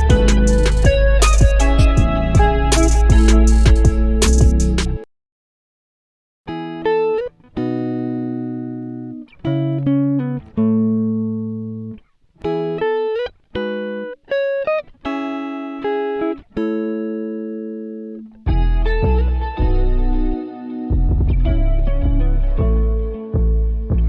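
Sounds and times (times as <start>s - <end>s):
plucked guitar chords: 0.0s - 5.1s, 6.5s - 24.0s.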